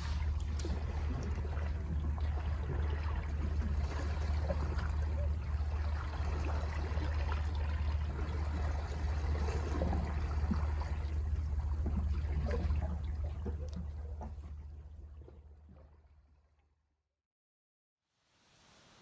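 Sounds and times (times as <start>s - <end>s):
low rumble: 0.0s - 6.5s
sea water washing among rocks: 0.0s - 7.5s.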